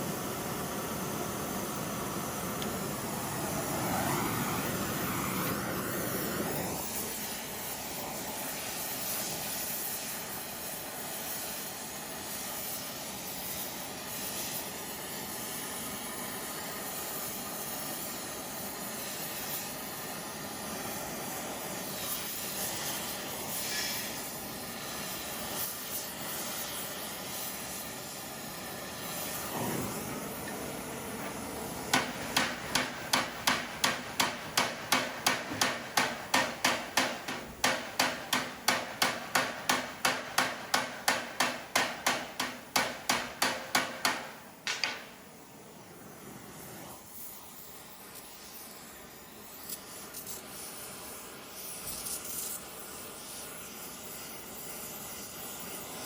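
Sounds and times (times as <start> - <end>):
steady hiss: 0.0 - 56.0
hammer striking metal on anvil: 31.9 - 45.3.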